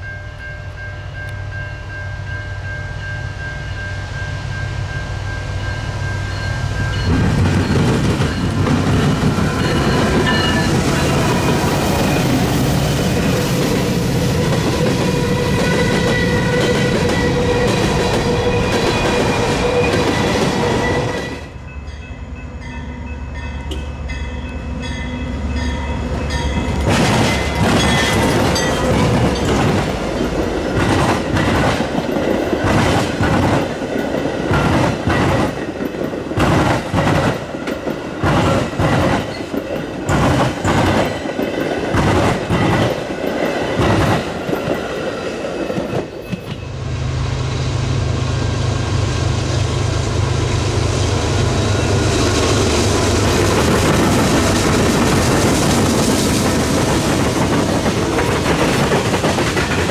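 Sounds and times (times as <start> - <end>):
train rumble: 0.0 - 59.9
train wheels clickety-clack: 7.0 - 21.5, 26.2 - 46.7, 51.9 - 59.9.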